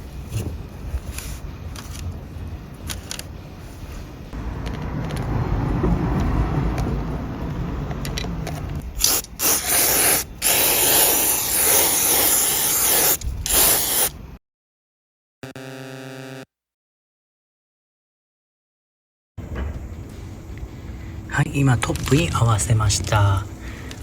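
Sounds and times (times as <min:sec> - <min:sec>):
aerosol spray can hissing: 0:09.0 - 0:14.2
short pitched tone: 0:15.4 - 0:16.4.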